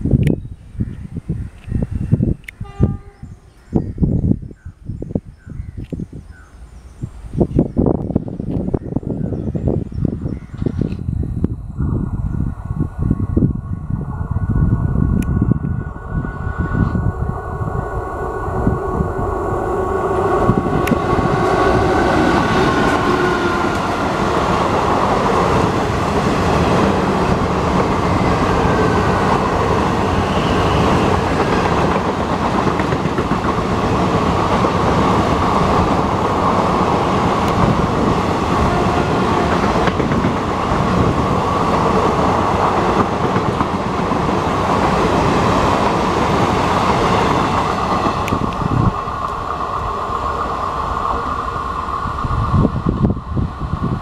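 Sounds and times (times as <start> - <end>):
electric locomotive passing: 6.1 - 54.0
train coaches rumbling past: 11.7 - 54.0.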